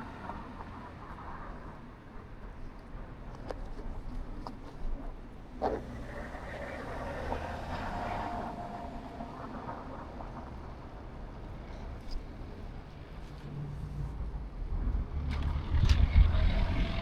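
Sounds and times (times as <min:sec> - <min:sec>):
motor vehicle passing: 0:05.6 - 0:10.9, 0:15.0 - 0:17.0.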